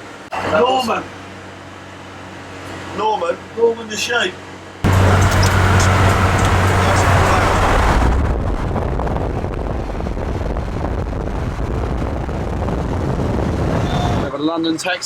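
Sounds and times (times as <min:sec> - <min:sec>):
low engine hum: 0:04.7 - 0:14.3
road rushing noise: 0:04.8 - 0:14.6.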